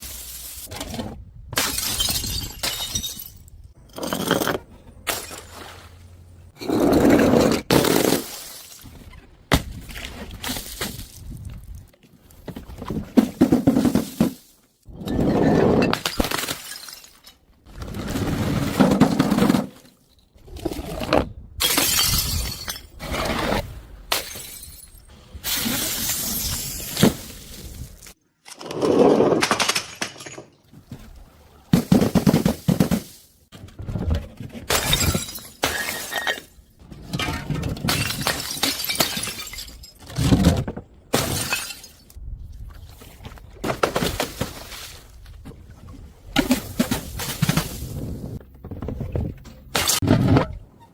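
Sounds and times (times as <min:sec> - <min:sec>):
glass bottles shattering: 0:01.6 - 0:04.4, 0:15.8 - 0:17.5, 0:21.6 - 0:23.0, 0:24.1 - 0:27.4, 0:34.7 - 0:36.6, 0:37.2 - 0:40.4, 0:41.2 - 0:42.1.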